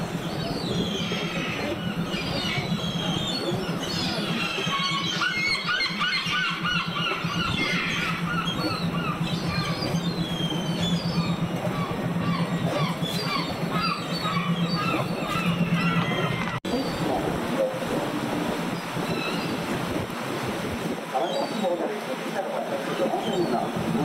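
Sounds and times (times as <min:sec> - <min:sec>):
birds squealing calls: 0:00.0 - 0:17.0, 0:18.7 - 0:19.6
steady low hum: 0:00.0 - 0:20.9.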